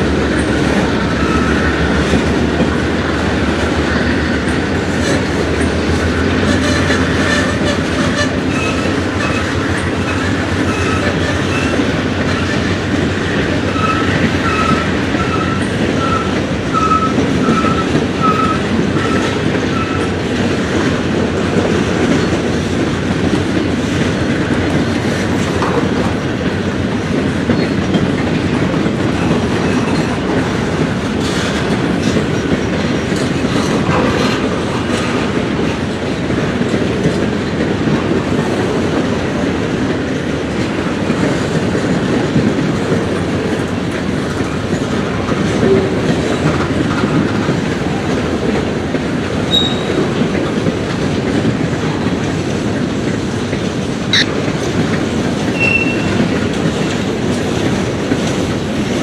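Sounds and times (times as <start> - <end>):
freight train cars rolling: 0.0 - 59.0
short high tones: 54.1 - 54.3.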